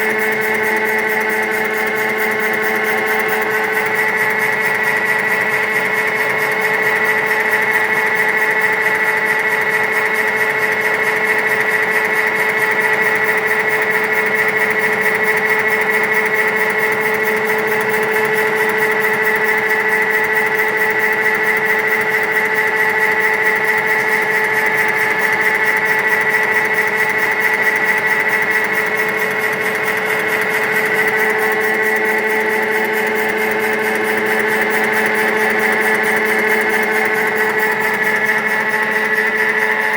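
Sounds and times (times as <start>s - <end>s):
pellet machine whining: 0.0s - 39.9s.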